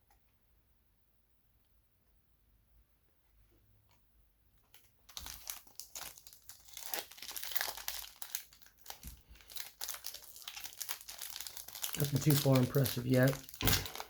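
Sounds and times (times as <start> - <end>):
foil wrapper tearing and crinkling: 4.7 - 14.0.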